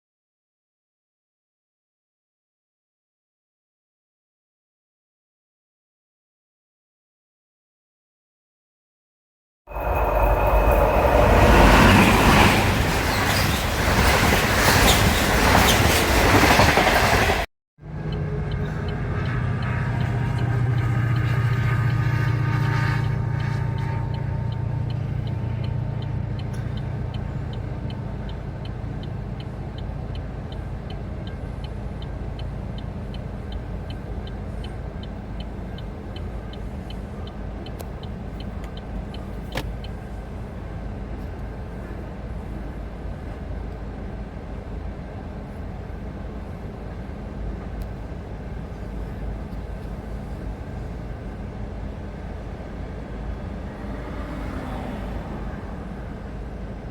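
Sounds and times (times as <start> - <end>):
low rumble: 9.7 - 13.7, 17.9 - 28.6
train engine hum: 9.7 - 56.9.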